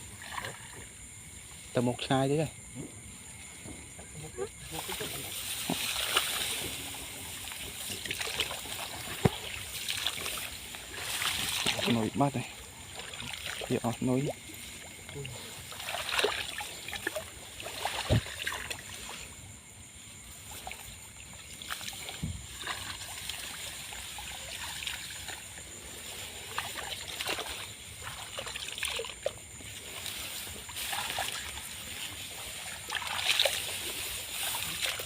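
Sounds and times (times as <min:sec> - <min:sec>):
water splashing and trickling: 0:00.0 - 0:02.5, 0:03.6 - 0:35.0.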